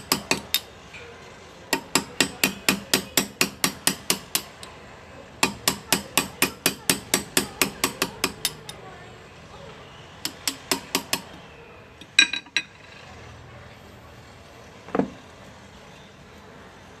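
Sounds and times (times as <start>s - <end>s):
hammer tapping graver into metal: 0.0s - 0.7s, 1.7s - 4.7s, 5.4s - 8.8s, 10.2s - 11.4s.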